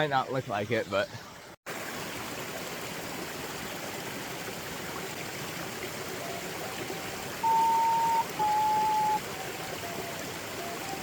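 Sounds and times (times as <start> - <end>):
stream water rushing: 1.7 - 11.0
whistle-like tones: 6.2 - 11.0
loud held pure tones: 6.7 - 11.0.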